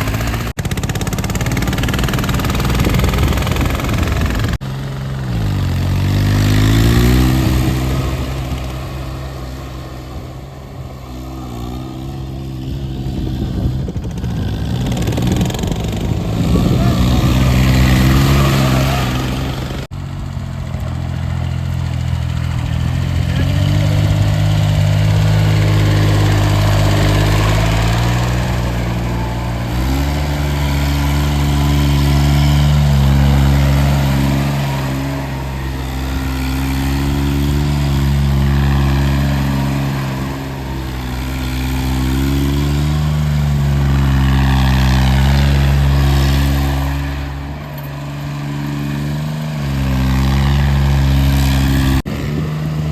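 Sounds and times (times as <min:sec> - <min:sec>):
tractor diesel engine revving: 0:00.0 - 0:52.9.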